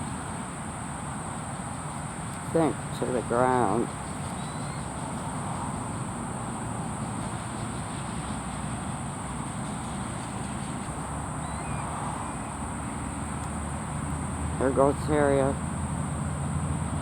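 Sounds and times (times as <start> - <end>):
insect chorus trilling: 0.0 - 17.0
faint bird chirps: 4.2 - 4.9, 11.4 - 12.6.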